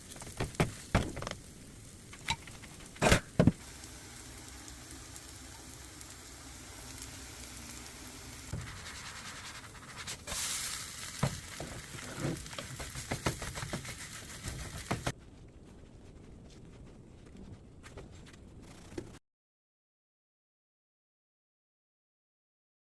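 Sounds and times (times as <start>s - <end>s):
faint hiss: 0.0s - 15.1s
batter sizzling in oil: 0.0s - 15.2s.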